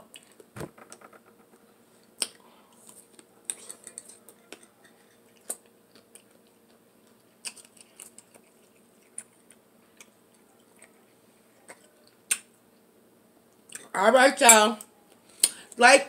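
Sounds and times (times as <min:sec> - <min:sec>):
chewing and mouth sounds: 0:02.1 - 0:12.5.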